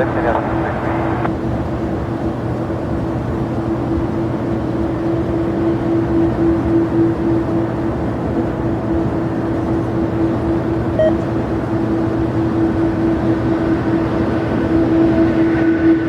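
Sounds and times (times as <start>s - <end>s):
jet engines running: 0.0s - 16.0s
short beep: 11.0s - 11.2s.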